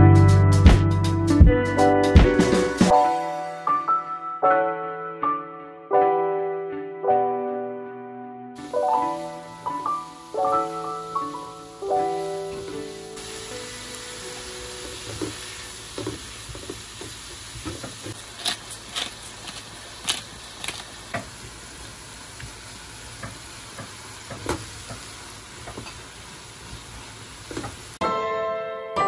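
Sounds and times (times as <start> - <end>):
vegetables sizzling in frying pan: 8.6 - 28.0
spatula scraping pan: 18.1 - 21.0.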